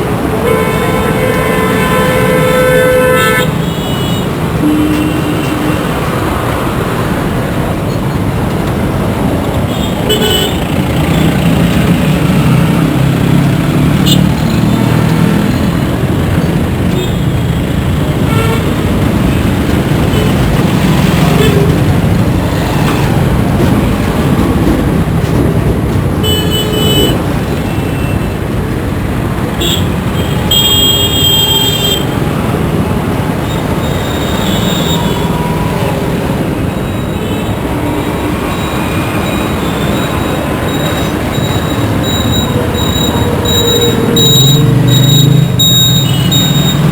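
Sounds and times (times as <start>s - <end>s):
rumble of engines and tyres: 0.0s - 46.9s
car horn toots: 29.6s - 32.1s.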